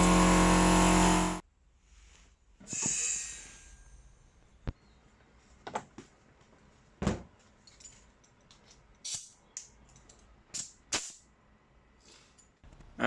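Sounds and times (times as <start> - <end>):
tools and metal parts clicking: 7.6 - 11.2.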